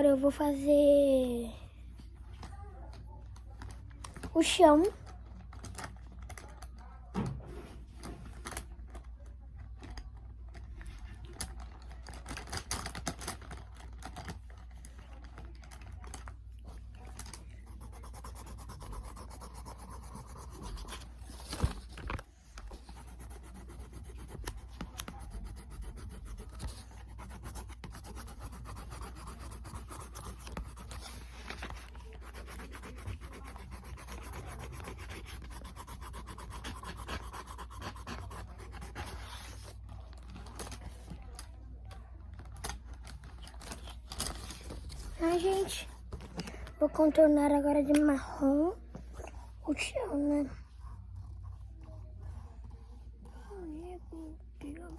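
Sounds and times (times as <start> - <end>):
drawing tool scratching on paper: 17.6 - 21.9, 22.6 - 39.8, 49.3 - 54.1.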